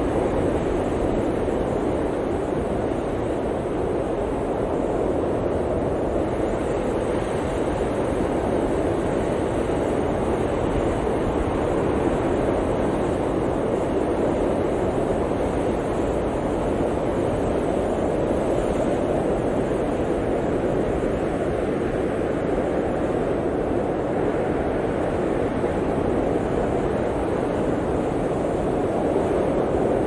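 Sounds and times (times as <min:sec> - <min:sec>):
blizzard wind rushing: 0:00.0 - 0:30.0.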